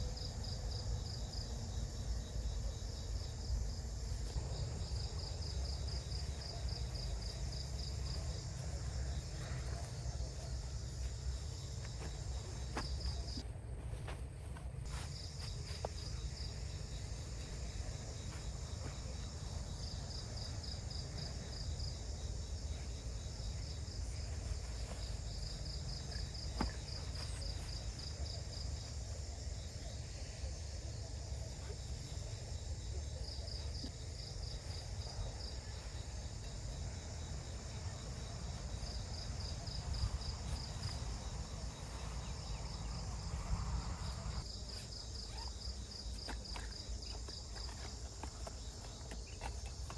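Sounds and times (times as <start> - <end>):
high insect hiss: 0.0 - 49.9
insects chirping in pulsed trills: 0.0 - 49.9.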